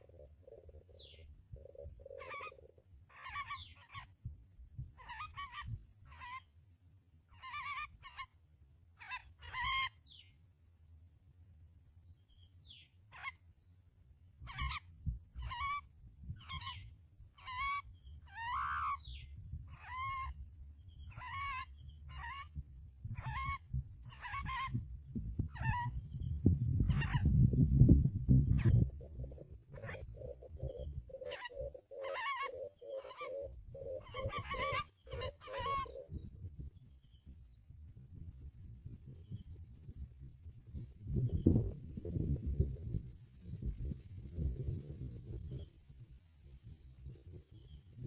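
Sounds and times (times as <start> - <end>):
low steady rumble: 0.0 - 48.0
harsh bird squawks: 2.0 - 4.1, 9.0 - 10.0, 15.4 - 20.4, 21.1 - 22.5, 23.2 - 24.8, 29.7 - 36.1.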